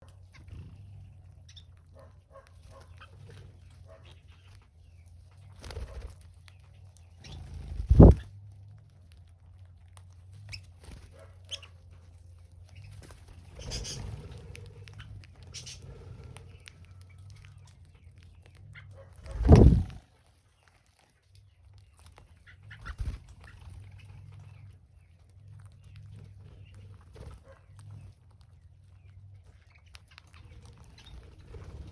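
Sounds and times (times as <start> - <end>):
birds chirping: 0.0 - 8.3, 10.3 - 20.8, 21.4 - 31.9
soft rushing noise: 7.9 - 8.2, 19.3 - 20.0
steady low hum: 19.2 - 20.0.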